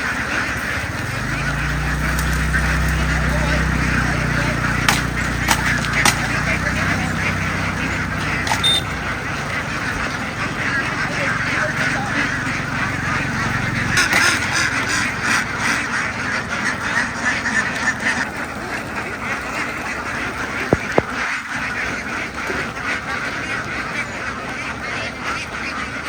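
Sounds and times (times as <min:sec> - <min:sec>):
flock of ducks quacking: 0:00.0 - 0:26.0
sharp knocks: 0:04.8 - 0:06.3.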